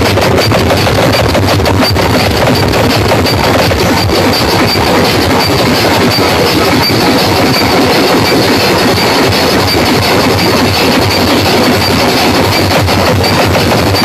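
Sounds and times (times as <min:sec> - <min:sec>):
loudspeaker playing rumbling audio: 0:00.0 - 0:14.0.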